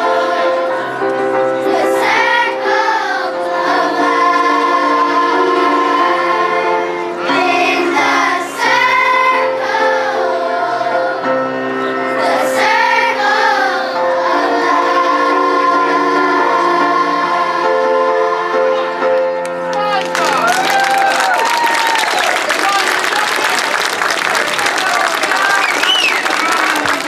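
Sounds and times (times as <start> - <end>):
children's chorus singing: 0.0 - 19.3
instrumental accompaniment: 0.0 - 21.2.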